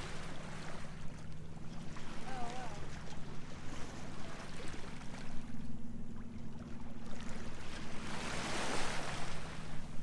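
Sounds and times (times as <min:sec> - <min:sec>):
rush of water or wind: 0:00.0 - 0:00.9, 0:07.5 - 0:10.0.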